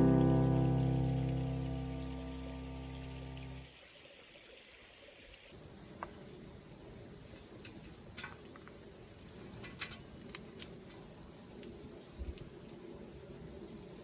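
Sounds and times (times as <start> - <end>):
wood fire crackling and popping: 0.0 - 3.6, 6.2 - 13.7.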